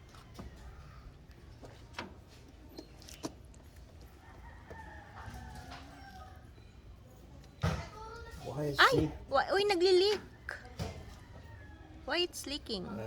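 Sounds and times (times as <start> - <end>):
rooster crowing: 4.2 - 6.4, 10.4 - 12.3.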